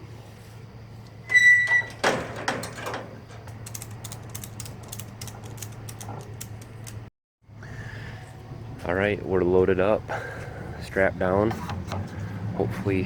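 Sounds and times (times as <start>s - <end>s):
ratchet strap clicking: 3.5s - 7.0s.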